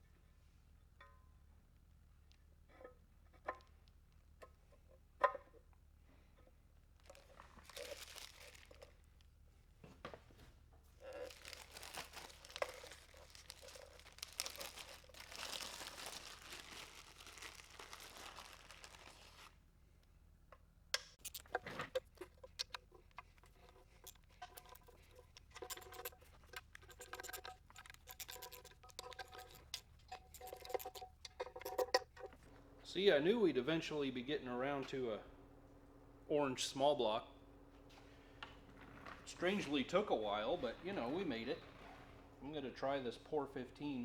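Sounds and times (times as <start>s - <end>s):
light clicks and clatter: 0.9s - 19.0s, 20.0s - 33.0s
tearing and crinkling handling noise: 7.0s - 9.2s, 10.9s - 19.6s.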